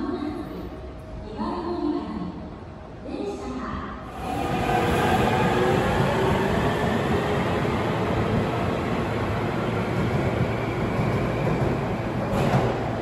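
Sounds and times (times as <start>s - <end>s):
train wheels rumbling on rail: 4.1s - 13.0s.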